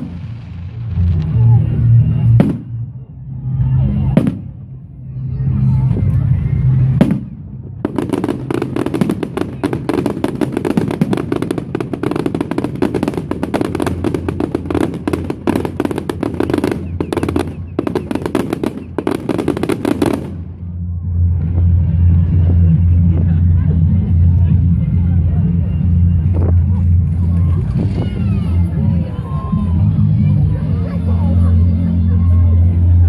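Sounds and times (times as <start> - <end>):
fireworks crackling bangs: 0.0 - 1.5, 2.3 - 2.8, 6.9 - 20.6.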